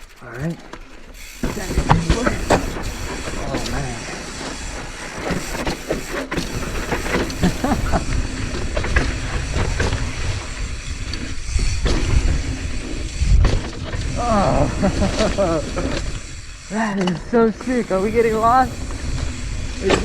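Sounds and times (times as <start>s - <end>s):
bike rattling on rocky trail: 0.0s - 20.0s
wind buffeting microphone: 17.7s - 20.0s.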